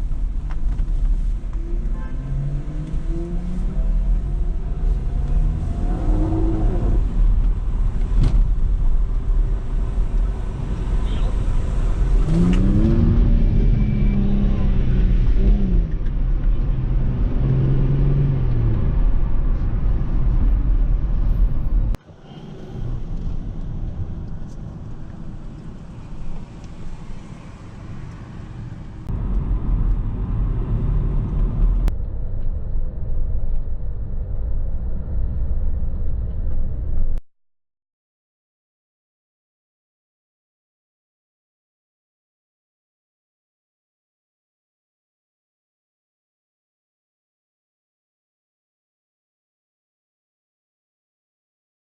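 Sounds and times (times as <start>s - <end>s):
car engines revving: 0.0s - 31.9s.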